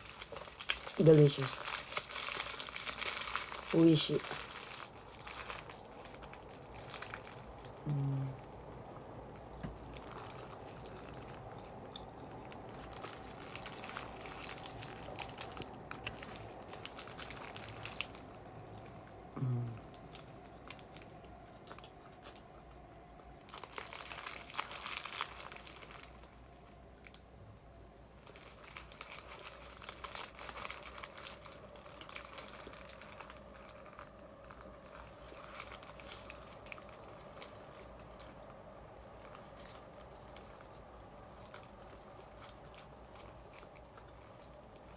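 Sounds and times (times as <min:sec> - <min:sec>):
paper wrapper crinkling: 0:00.0 - 0:08.4, 0:09.3 - 0:19.0, 0:19.9 - 0:21.1, 0:23.4 - 0:27.3, 0:28.2 - 0:44.9
soft chewing: 0:01.6 - 0:44.9
person humming briefly: 0:07.8 - 0:08.4, 0:19.4 - 0:19.9.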